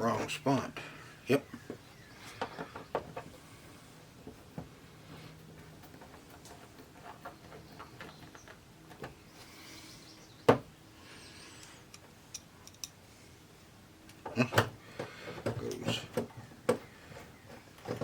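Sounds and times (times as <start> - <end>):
small clicks and taps of parts: 11.6 - 13.0.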